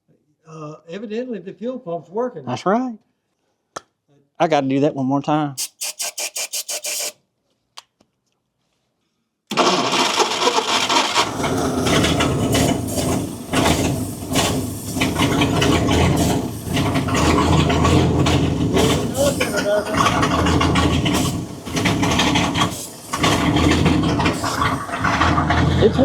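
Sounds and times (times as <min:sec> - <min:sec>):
starter motor cranking: 0:05.6 - 0:07.1, 0:09.5 - 0:26.0
car engine running: 0:09.6 - 0:26.0.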